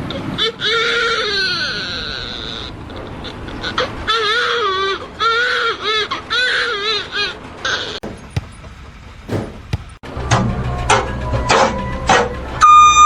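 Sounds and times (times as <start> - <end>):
high wavering crying voice: 0.0 - 8.0.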